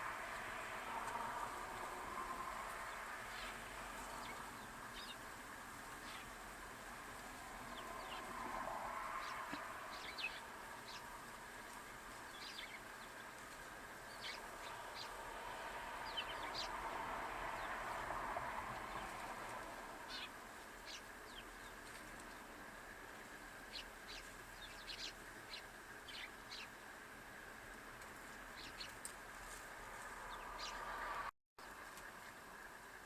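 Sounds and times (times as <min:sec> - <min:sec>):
birds chirping: 0:02.7 - 0:05.3, 0:05.9 - 0:06.4, 0:07.6 - 0:08.4, 0:09.2 - 0:15.2, 0:16.0 - 0:18.1, 0:20.0 - 0:26.8, 0:28.2 - 0:29.2, 0:30.0 - 0:32.4.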